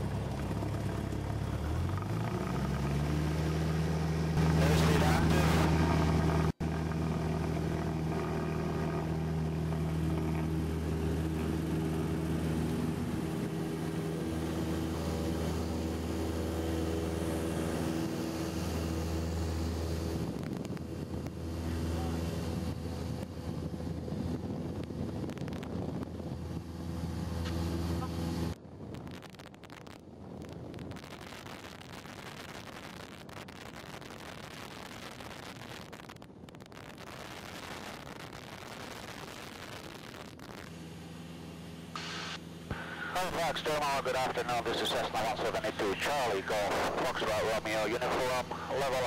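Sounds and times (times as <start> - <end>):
airplane engine at full power: 0.0 - 28.6, 40.5 - 49.0.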